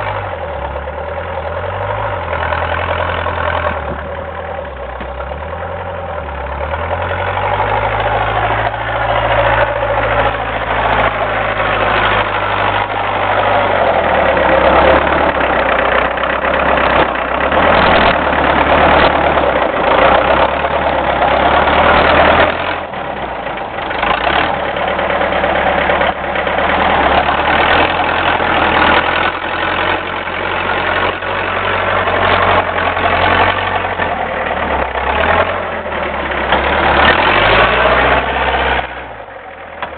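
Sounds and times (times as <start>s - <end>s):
diesel tractor engine under load: 0.0s - 39.9s.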